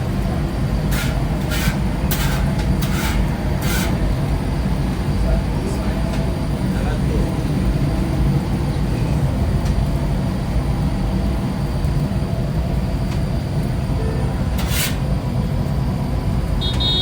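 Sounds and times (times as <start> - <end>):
motor vehicle rumble: 0.0 - 17.0.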